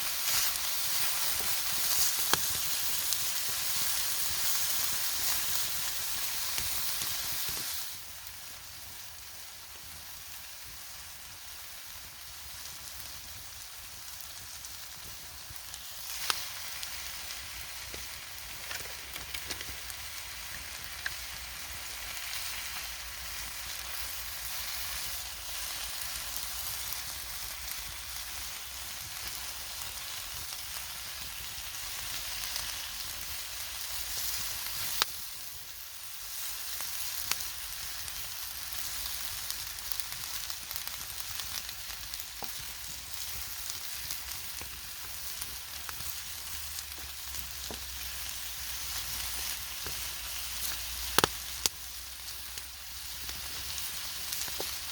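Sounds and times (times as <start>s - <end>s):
food sizzling in a pan: 0.0s - 54.9s.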